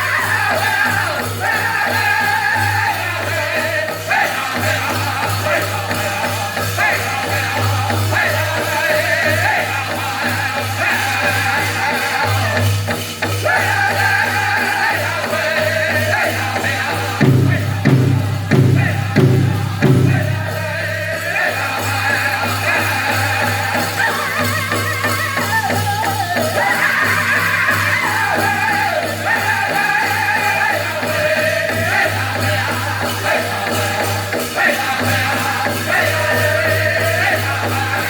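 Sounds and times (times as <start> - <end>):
group singing in high voices: 0.0 - 38.0
large drum beating: 17.2 - 20.8.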